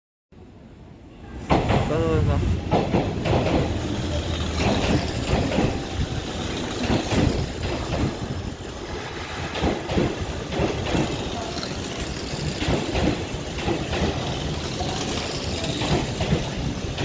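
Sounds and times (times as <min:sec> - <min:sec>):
electric train rumbling past: 0:00.4 - 0:17.0
wheels knocking on rail joints: 0:02.6 - 0:08.6, 0:09.5 - 0:17.0.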